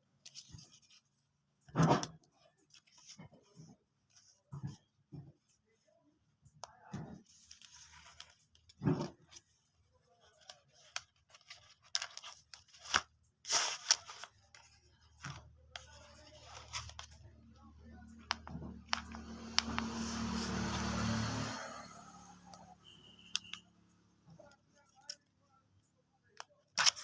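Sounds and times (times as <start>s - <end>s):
packaging clicks and scrapes: 10.2s - 17.3s, 26.7s - 27.0s
packaging tearing and rustling: 10.9s - 14.5s.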